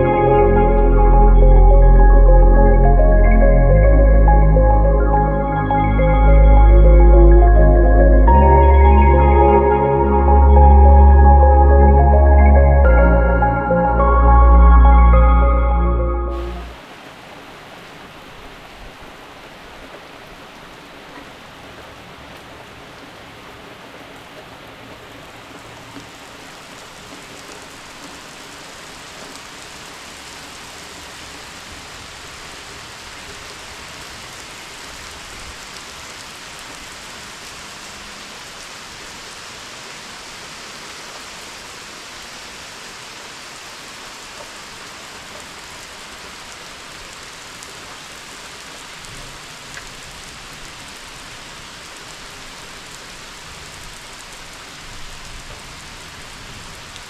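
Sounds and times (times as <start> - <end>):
water rushing and splashing: 0.0 - 57.0.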